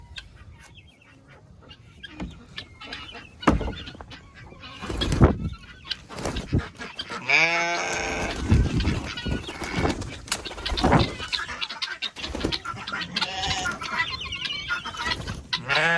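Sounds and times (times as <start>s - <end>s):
poultry calling: 0.3s - 15.9s
heavy thumps or rustles: 2.2s - 4.1s.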